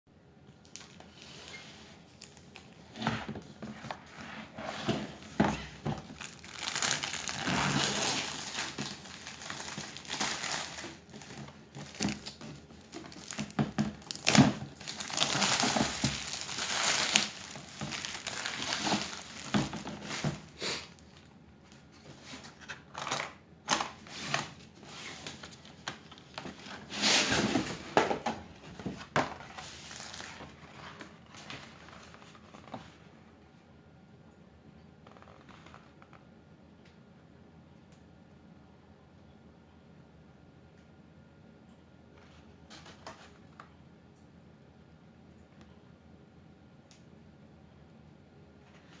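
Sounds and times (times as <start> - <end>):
packaging crinkling and rustling: 0.5 - 33.1.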